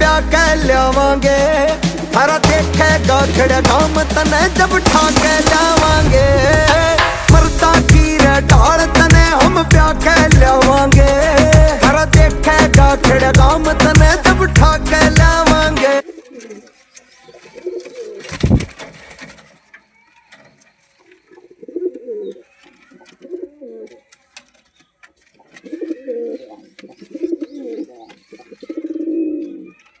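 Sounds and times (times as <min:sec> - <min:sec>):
loud thump: 0:04.9 - 0:08.0
pigeons cooing: 0:16.0 - 0:16.8, 0:17.4 - 0:18.6, 0:21.1 - 0:24.0, 0:25.4 - 0:29.9.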